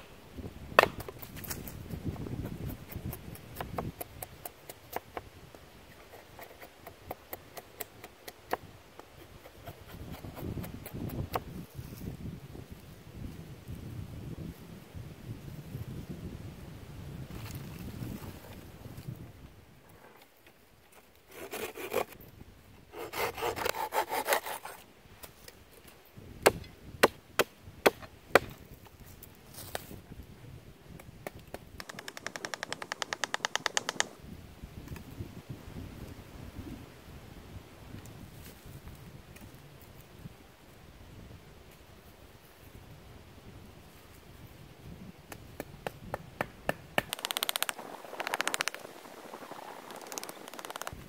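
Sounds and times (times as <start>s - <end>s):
hand saw cutting wood: 21.3s - 22.2s, 22.9s - 24.8s.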